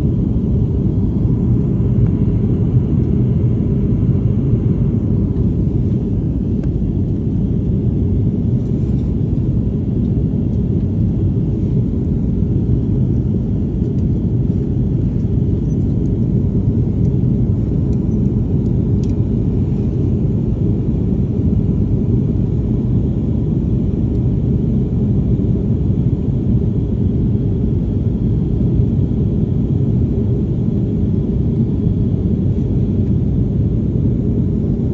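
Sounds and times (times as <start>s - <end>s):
rushing air in cabin: 0.0s - 22.7s
airliner engines rumbling: 0.0s - 34.9s.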